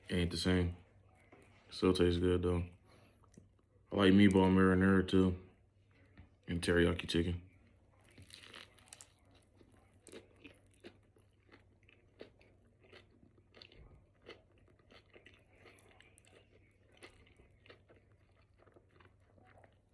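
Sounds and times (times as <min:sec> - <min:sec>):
soft crunches of bread: 0:07.6 - 0:19.9
person chewing food: 0:08.0 - 0:19.9.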